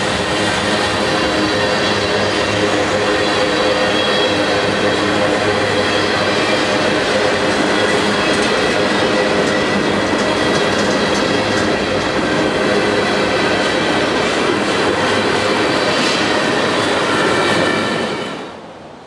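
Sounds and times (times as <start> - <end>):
train wheels on rails: 0.0 - 19.0
clicking over rail joints: 6.7 - 15.2.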